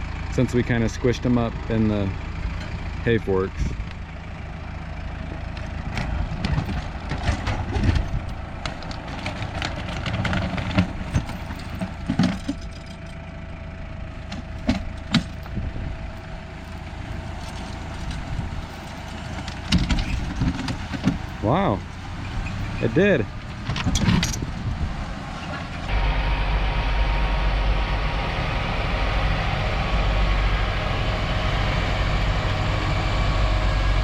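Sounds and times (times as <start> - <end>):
engine idling: 0.0 - 34.0
metal clanks and knocks: 2.5 - 2.9, 5.5 - 13.2, 14.1 - 25.9.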